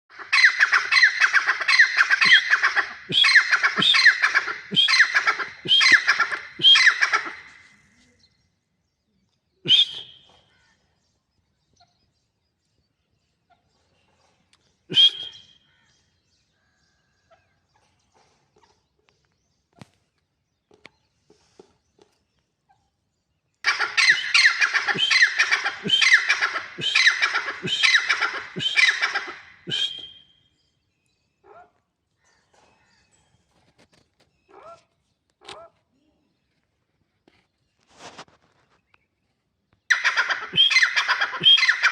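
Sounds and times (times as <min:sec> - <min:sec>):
francolin calling: 0:00.1 - 0:07.6, 0:23.7 - 0:30.3, 0:39.9 - 0:41.9.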